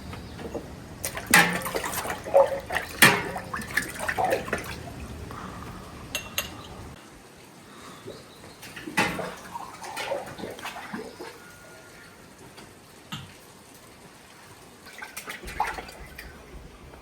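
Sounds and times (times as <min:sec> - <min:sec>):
water splashing: 0:00.0 - 0:07.0, 0:07.7 - 0:12.2, 0:14.2 - 0:17.0
dishes knocking and clinking: 0:00.4 - 0:04.8, 0:06.1 - 0:06.7.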